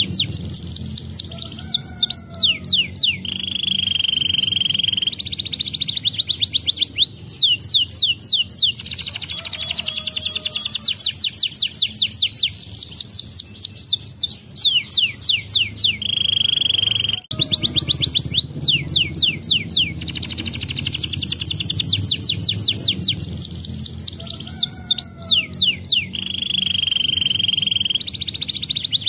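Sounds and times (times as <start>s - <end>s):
canary singing: 0.0s - 29.0s.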